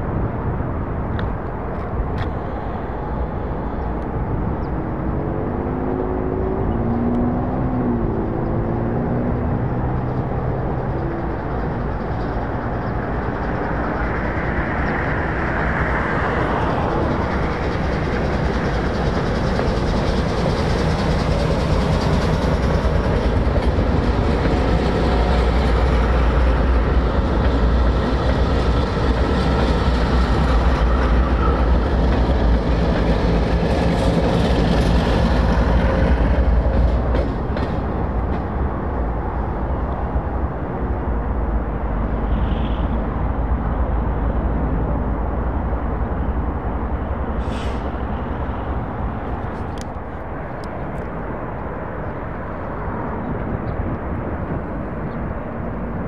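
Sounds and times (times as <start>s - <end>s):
diesel locomotive engine hum: 0.0s - 56.0s
train wheels clattering on rails: 9.5s - 39.2s.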